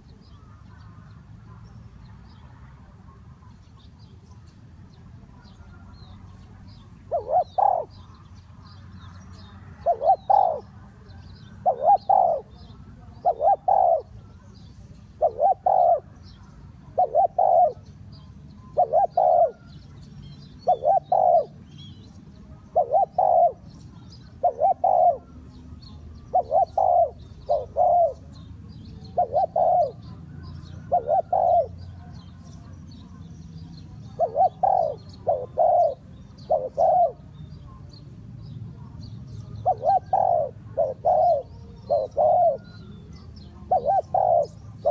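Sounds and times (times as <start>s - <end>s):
dove cooing: 2.2s - 37.9s, 38.7s - 44.9s.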